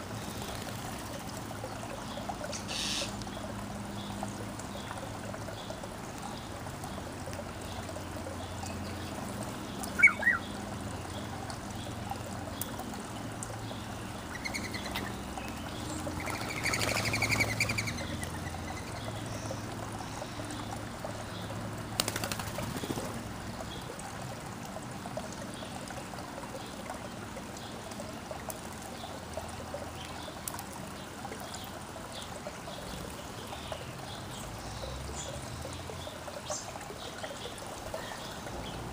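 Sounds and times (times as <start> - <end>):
water trickling: 0.0 - 38.9
birds calling: 1.9 - 23.9.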